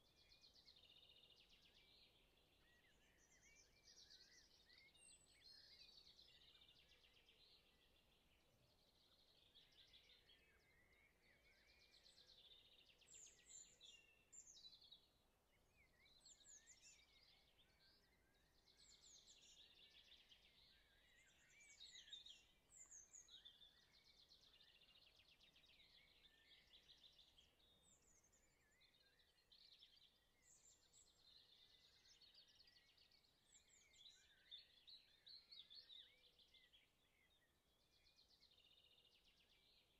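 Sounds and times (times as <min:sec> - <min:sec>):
small birds chirping and trilling: 0:00.0 - 0:39.9.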